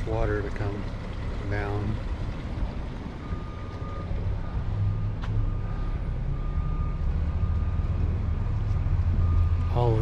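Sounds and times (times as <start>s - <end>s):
low engine rumble: 0.0s - 10.0s
reversing alarm beeping: 3.2s - 8.0s, 9.1s - 10.0s.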